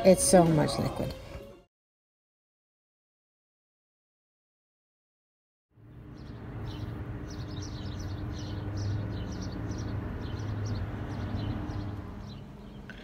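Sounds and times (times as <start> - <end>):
car engine idling: 5.8 - 13.0
bird chirping: 5.9 - 13.0.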